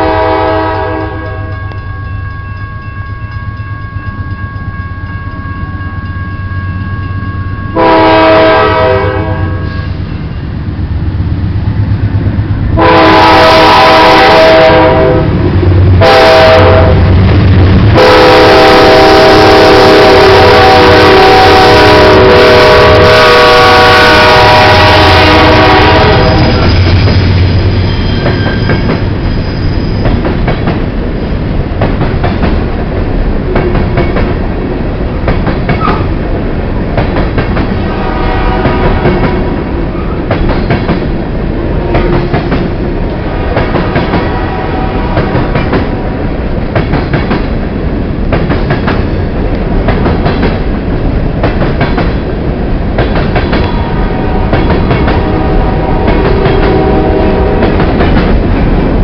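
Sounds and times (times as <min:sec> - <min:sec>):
locomotive horn blast: 0:00.0 - 0:01.8, 0:07.7 - 0:09.9, 0:12.8 - 0:17.1, 0:17.9 - 0:26.9, 0:37.8 - 0:39.5, 0:43.6 - 0:46.2, 0:53.7 - 0:57.8
freight train wheels rumbling: 0:00.0 - 0:59.0.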